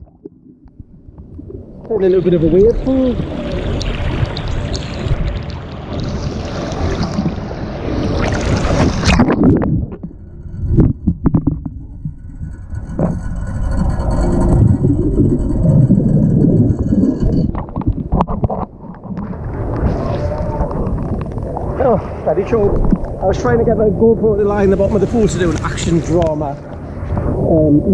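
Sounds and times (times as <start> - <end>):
pool water splashing: 1.9 - 9.7
muffled underwater bubbling: 12.9 - 25.6.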